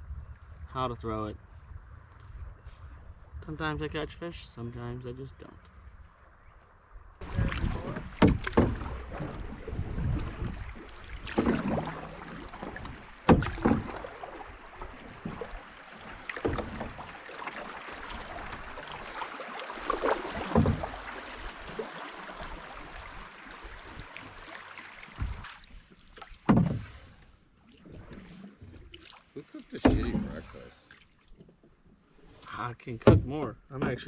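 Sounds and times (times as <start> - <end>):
canoe paddle splashes and knocks: 7.2 - 34.0.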